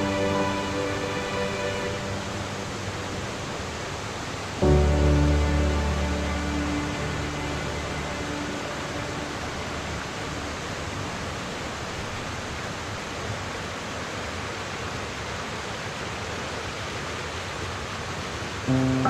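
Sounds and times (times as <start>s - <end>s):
music: 0.0s - 3.6s, 4.6s - 11.0s, 18.7s - 19.0s
waterfall rushing: 0.0s - 15.2s.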